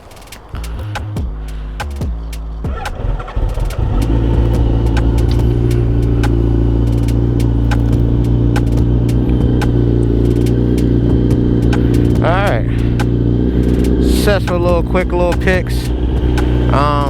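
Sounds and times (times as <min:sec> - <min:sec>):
light clicks: 0:00.0 - 0:11.0
motorcycle engine idling: 0:00.0 - 0:17.0.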